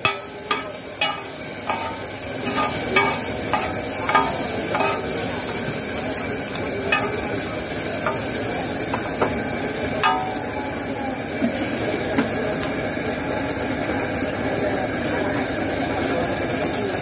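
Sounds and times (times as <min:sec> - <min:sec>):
metal spatula clinking: 0:00.0 - 0:05.6, 0:06.6 - 0:08.4, 0:10.0 - 0:10.6
food sizzling on a griddle: 0:00.0 - 0:17.0.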